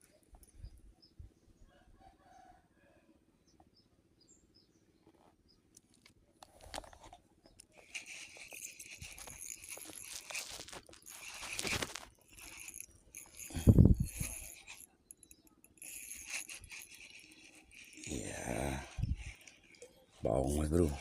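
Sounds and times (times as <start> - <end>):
rustling crunching noise: 5.9 - 14.8.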